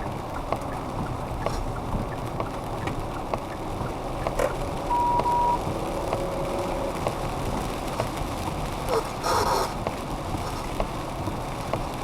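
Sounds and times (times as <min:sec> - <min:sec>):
car driving in rain hiss: 0:00.0 - 0:12.0
short high electronic beep: 0:04.9 - 0:05.6.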